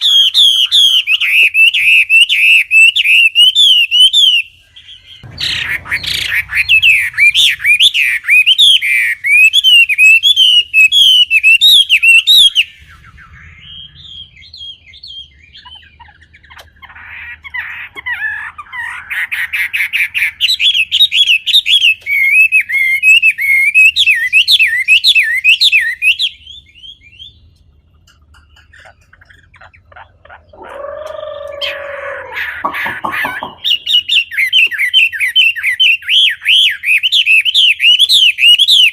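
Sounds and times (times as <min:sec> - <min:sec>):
low-pitched bird call: 0:00.0 - 0:20.9, 0:28.0 - 0:35.9
bird chirping rapidly: 0:00.0 - 0:38.9.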